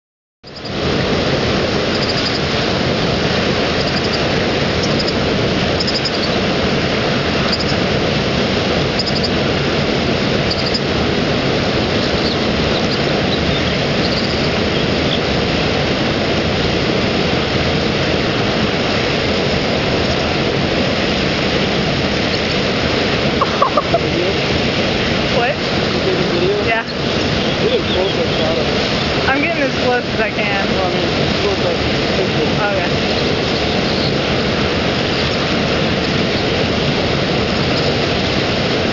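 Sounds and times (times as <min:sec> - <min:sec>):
waterfall rushing: 0:00.5 - 0:38.9
bird screaming: 0:10.5 - 0:10.8, 0:12.0 - 0:14.5.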